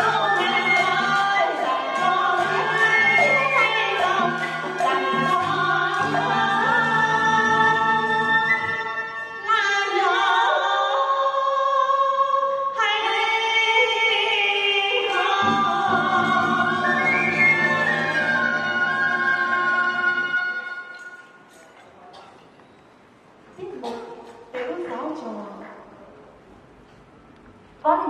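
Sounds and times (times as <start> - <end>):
musical accompaniment: 0.0 - 9.6, 15.1 - 21.5.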